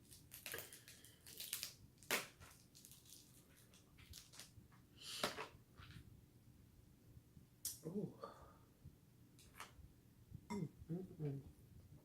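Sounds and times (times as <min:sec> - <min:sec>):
crab shell cracking: 0:00.1 - 0:03.1.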